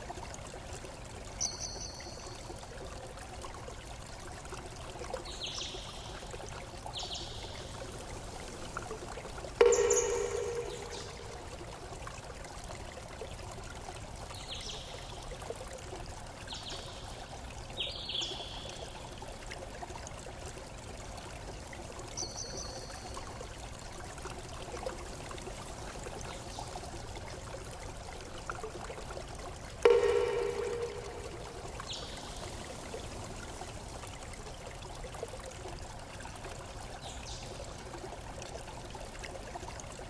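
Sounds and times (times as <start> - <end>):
stream water trickling: 0.0 - 40.0
short high chirps: 9.6 - 11.4
loud ringing tone: 9.6 - 11.5, 29.9 - 31.8.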